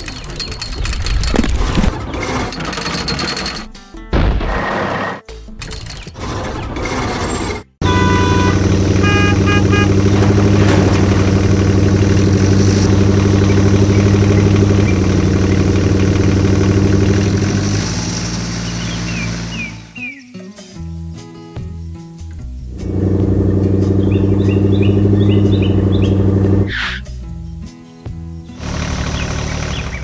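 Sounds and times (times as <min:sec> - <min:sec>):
vehicle engine pulsing: 0:06.2 - 0:20.0, 0:22.6 - 0:26.8, 0:28.6 - 0:30.0
short horn toots: 0:07.8 - 0:13.0.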